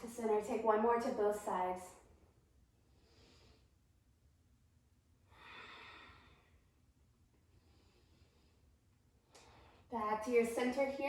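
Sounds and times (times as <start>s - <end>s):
woman breathing: 2.8s - 3.8s, 5.2s - 6.8s, 7.4s - 9.9s.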